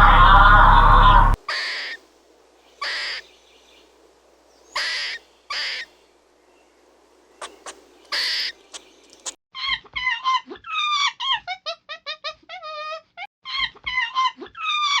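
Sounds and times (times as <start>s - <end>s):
faint clicks: 7.4s - 9.4s.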